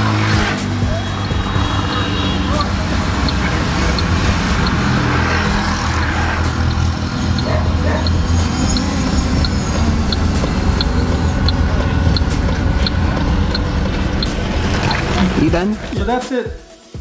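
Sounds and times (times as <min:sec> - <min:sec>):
car engine idling: 0:00.0 - 0:16.1.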